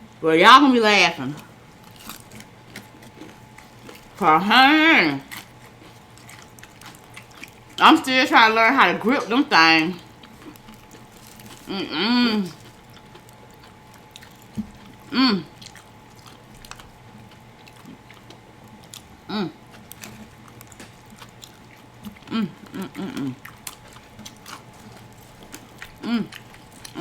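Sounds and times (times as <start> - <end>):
person chewing food: 1.2 - 27.0
person humming: 11.6 - 12.7, 15.1 - 15.6, 19.3 - 19.6, 22.3 - 23.4, 26.0 - 27.0.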